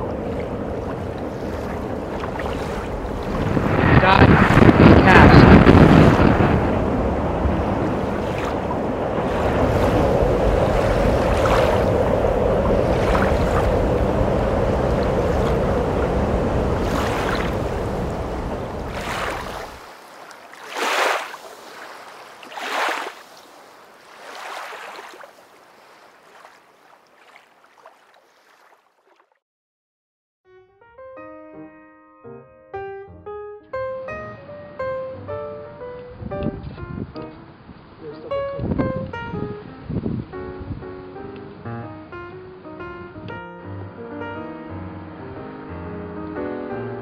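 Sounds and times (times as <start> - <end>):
wind buffeting microphone: 0.0 - 19.9, 36.1 - 41.0
faint rushing whooshes: 0.0 - 20.0.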